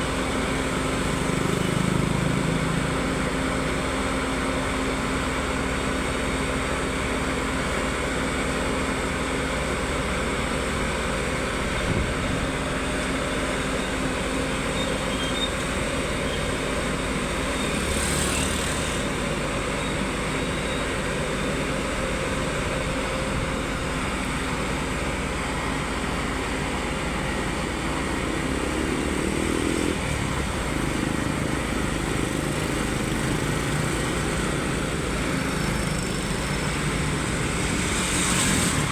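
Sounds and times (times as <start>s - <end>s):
heavy equipment engine running: 0.0s - 38.9s.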